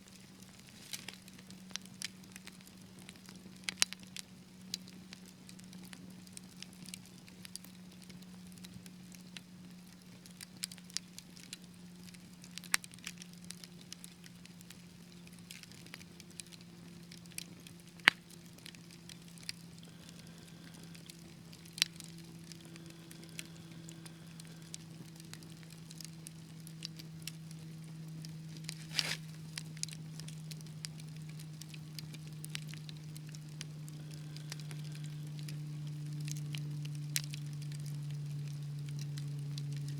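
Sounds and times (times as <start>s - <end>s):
wood fire crackling: 0.0s - 39.9s
steady low hum: 11.4s - 39.9s.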